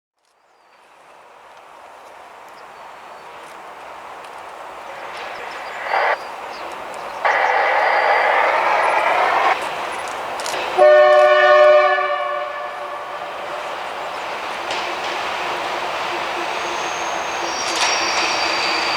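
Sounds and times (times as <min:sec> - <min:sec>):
diesel locomotive rumble: 0:03.3 - 0:18.9
locomotive horn blasts: 0:10.8 - 0:13.6.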